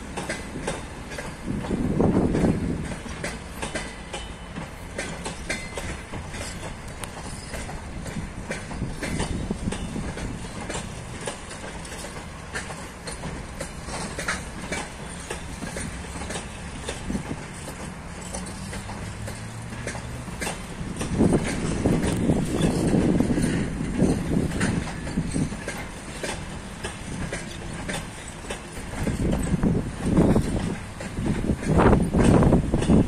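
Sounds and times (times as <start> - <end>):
train low rumble: 0.0 - 33.0
wheels clacking over rail joints: 0.0 - 33.0.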